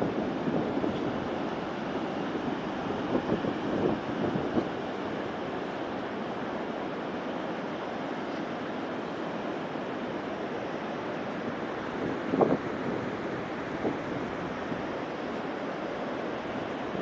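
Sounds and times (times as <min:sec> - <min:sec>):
sea surf: 0:00.0 - 0:17.0
wind on microphone: 0:02.9 - 0:04.8, 0:12.0 - 0:14.9.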